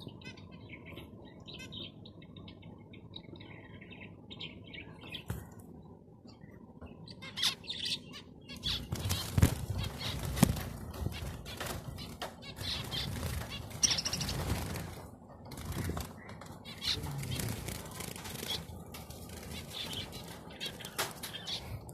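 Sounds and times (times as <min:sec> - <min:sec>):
wings fluttering: 0:08.6 - 0:21.8.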